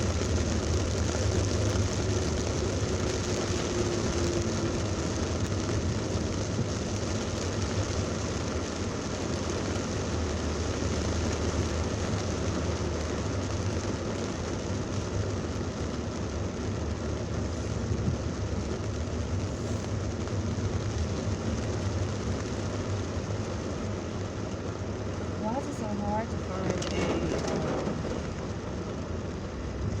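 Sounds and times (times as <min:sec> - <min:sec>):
traffic road noise: 0:00.0 - 0:30.0
heavy rain hissing: 0:19.2 - 0:29.4.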